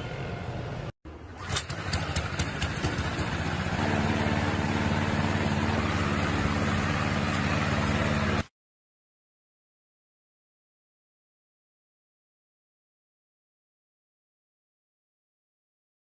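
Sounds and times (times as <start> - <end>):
vehicle engine running: 0.0 - 8.5.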